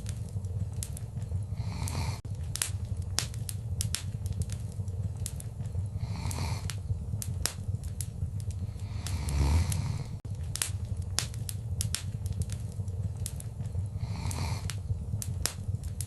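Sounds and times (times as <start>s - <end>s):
fire crackling and popping: 0.0s - 16.0s
low rumble of flames: 0.0s - 16.0s.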